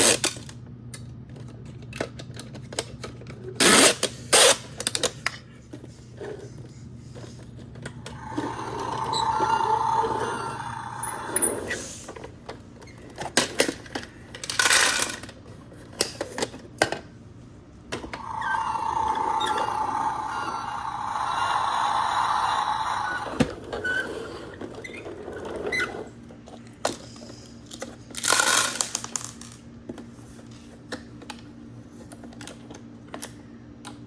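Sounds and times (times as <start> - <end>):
plastic clicks and clatter: 0.2 - 3.4, 32.1 - 34.0
small electric motor whining: 8.0 - 12.0, 18.0 - 24.7.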